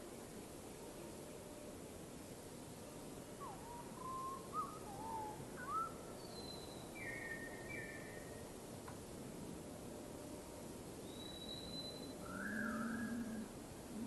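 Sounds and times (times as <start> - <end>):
steady background hiss: 0.0 - 14.0
bird whistling calls: 3.4 - 8.2, 11.1 - 13.4.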